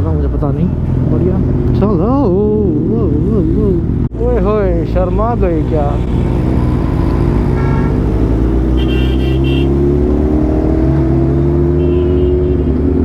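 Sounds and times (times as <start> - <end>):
vehicle horn toots: 7.5 - 8.1, 8.8 - 9.8, 11.8 - 12.8.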